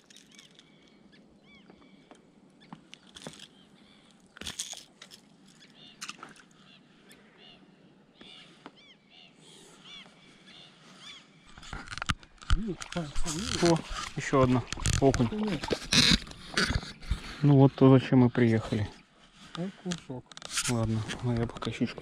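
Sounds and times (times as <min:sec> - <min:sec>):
faint bird calls: 0:00.0 - 0:04.3, 0:05.5 - 0:11.8.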